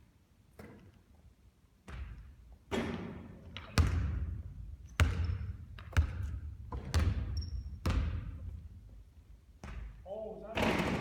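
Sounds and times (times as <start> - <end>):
basketball bouncing on wooden floor: 1.8 - 8.6, 9.6 - 10.0.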